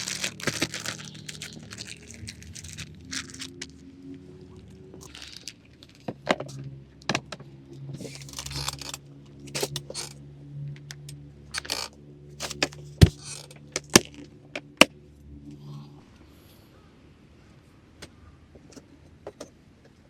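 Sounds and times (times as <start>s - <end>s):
rustling: 0.0s - 3.8s
camp gear clinking and knocking: 8.0s - 10.2s, 11.6s - 14.3s.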